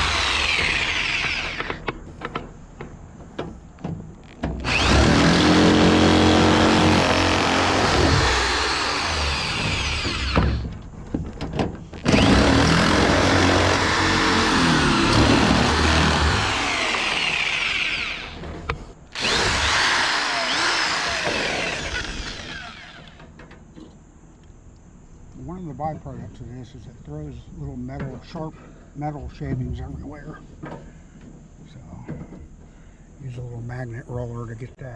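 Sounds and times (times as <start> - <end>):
power tool cutting sheet metal: 0.0 - 1.8, 4.6 - 10.6, 12.0 - 18.4, 19.2 - 23.2.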